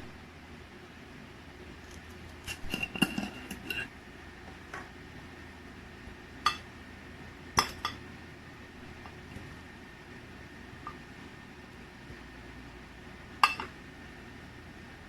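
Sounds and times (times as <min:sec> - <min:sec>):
kitchenware clinking: 0:02.4 - 0:03.9, 0:13.4 - 0:13.7.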